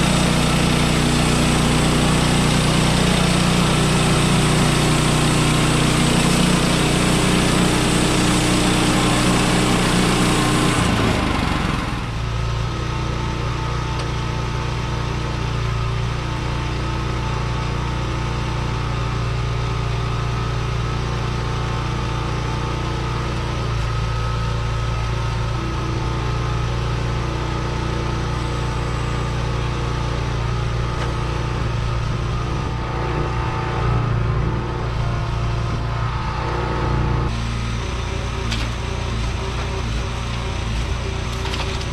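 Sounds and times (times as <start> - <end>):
small gas engine running: 0.0 - 41.9.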